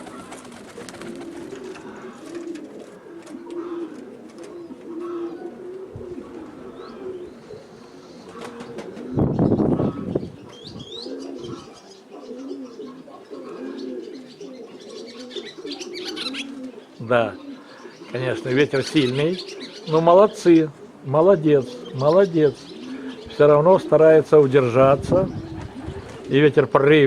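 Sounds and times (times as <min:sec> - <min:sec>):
pigeons cooing: 0:00.0 - 0:27.0.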